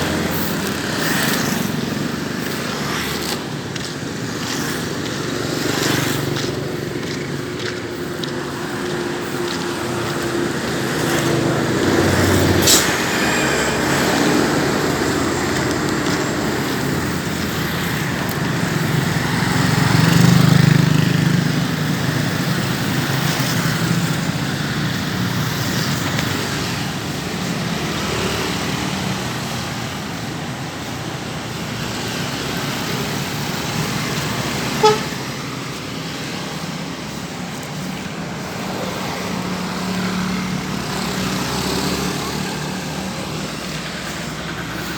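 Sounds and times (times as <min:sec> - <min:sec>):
road traffic passing: 0:00.0 - 0:44.9.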